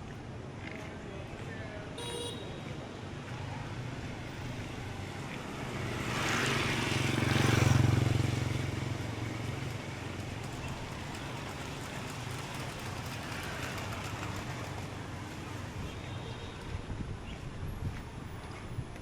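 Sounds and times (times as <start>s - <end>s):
street traffic hum: 0.0s - 19.0s
vehicle passing by: 4.7s - 15.9s.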